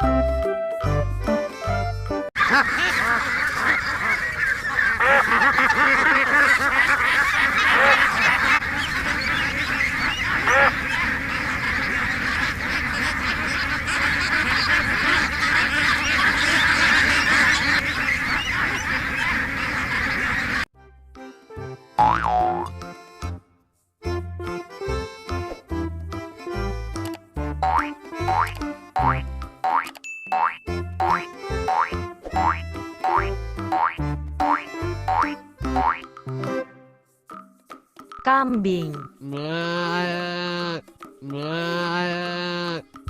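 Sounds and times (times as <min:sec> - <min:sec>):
ducks quacking: 0:02.4 - 0:20.7, 0:39.3 - 0:42.9.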